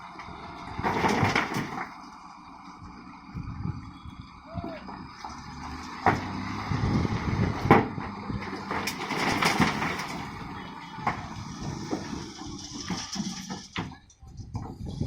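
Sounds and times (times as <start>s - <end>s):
construction machinery engine hum: 0.0s - 15.0s
sharp metallic clanks and knocks: 11.0s - 14.8s.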